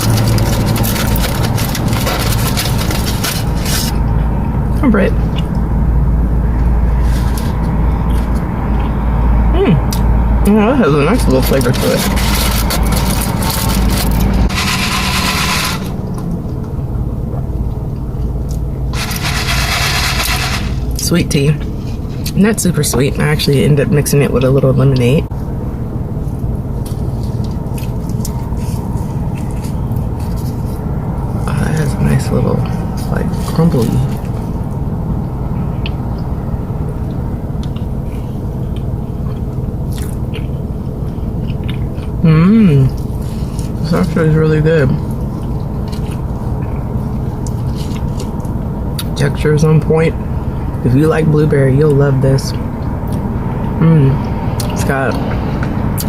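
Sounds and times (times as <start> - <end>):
eating and drinking noises: 0.0 - 4.6, 6.7 - 16.7, 26.7 - 49.2
low hum: 0.0 - 56.0
person chewing food: 37.0 - 42.2.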